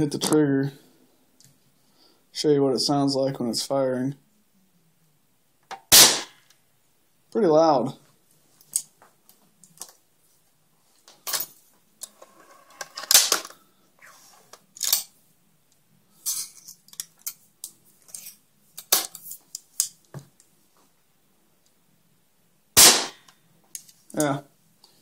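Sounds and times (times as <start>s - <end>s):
pellet gun crack: 5.9s - 6.4s, 22.8s - 23.3s.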